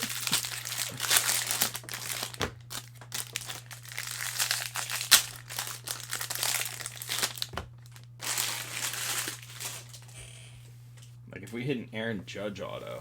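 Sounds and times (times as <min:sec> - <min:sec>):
foil wrappers crinkling and tearing: 0:00.0 - 0:10.2.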